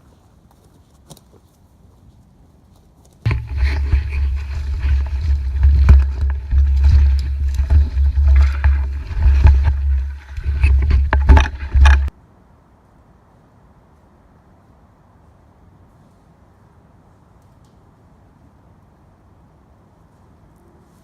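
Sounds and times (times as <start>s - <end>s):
wind buffeting microphone: 3.2s - 12.1s
sharp knocks and rattles: 3.3s - 12.1s.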